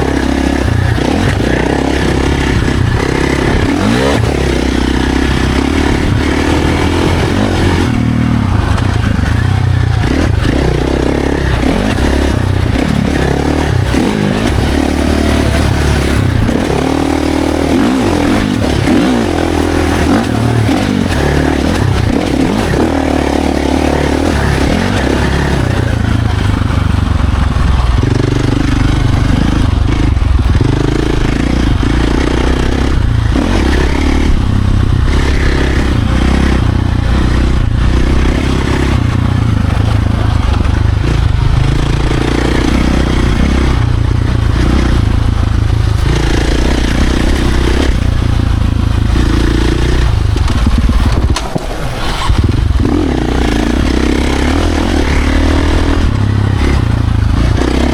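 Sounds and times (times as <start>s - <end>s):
dirt bike engine revving: 0.0s - 57.9s
wind rush: 49.8s - 57.7s.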